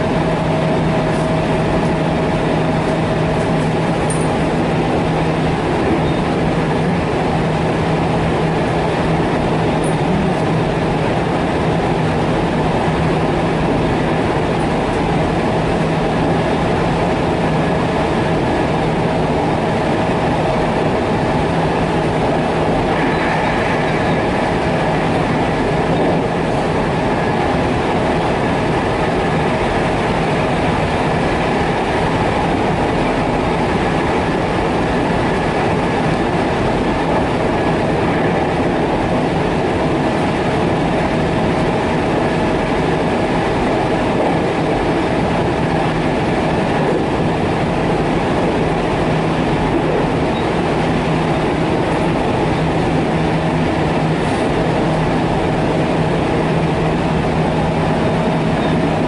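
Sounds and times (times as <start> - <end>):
train motor hum: 0.0 - 59.0
train wheels rumbling on rail: 0.0 - 59.0.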